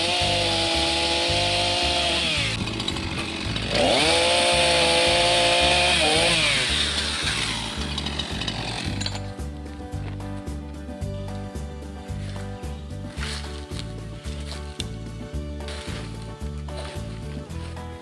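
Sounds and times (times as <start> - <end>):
chainsaw revving: 0.0 - 9.4
music beat: 0.0 - 18.0.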